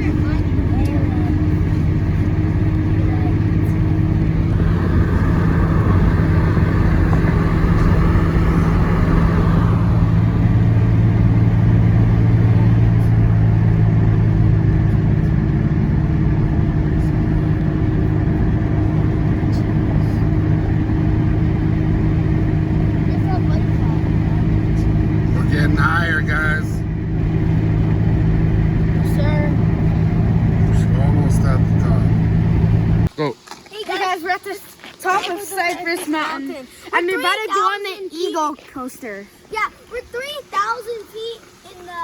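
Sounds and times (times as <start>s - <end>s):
car engine hum: 0.0s - 33.1s
road noise: 0.0s - 42.0s.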